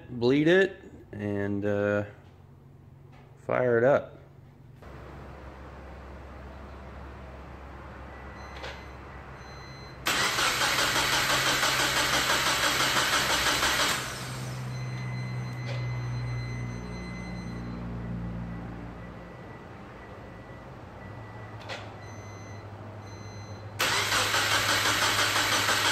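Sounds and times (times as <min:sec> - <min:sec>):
engine cranked by starter: 0:10.0 - 0:14.9, 0:23.8 - 0:25.9.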